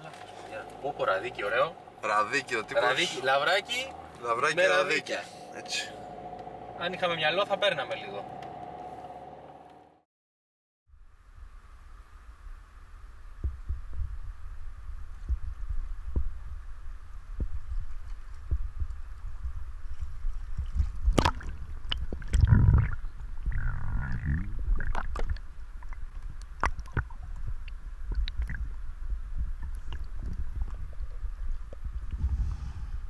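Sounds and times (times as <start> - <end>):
low rumble: 0.0 - 10.0, 12.4 - 33.0
underwater bubbling: 17.3 - 32.3
water sloshing and splashing: 17.8 - 31.9.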